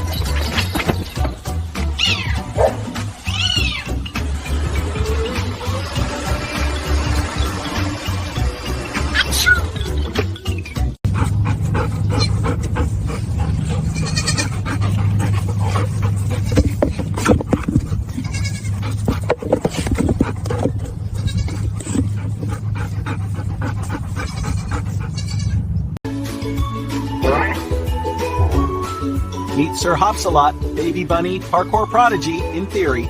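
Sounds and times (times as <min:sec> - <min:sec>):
animal cries: 0:02.0 - 0:04.2, 0:09.1 - 0:10.0, 0:13.6 - 0:15.4, 0:18.1 - 0:19.0, 0:24.1 - 0:25.6.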